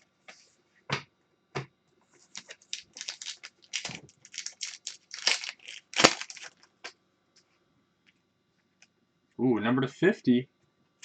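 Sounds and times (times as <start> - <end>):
foil wrapper tearing and crinkling: 2.3 - 6.6.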